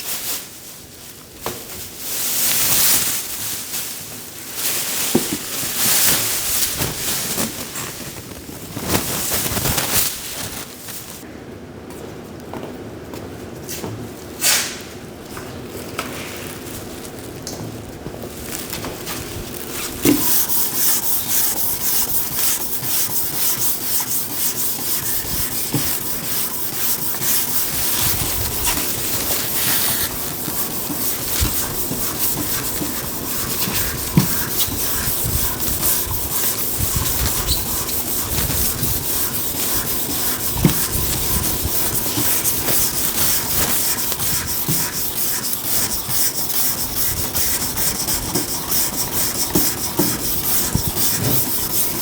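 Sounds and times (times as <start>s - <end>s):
sanding car body panel: 19.8s - 52.0s.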